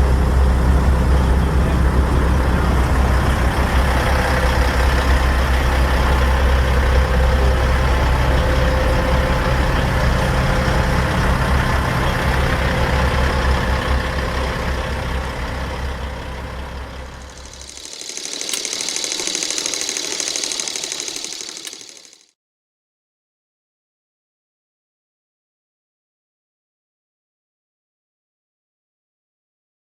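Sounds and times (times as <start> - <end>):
diesel truck engine rumbling: 0.0 - 17.8
fluttering hiss: 17.3 - 22.2.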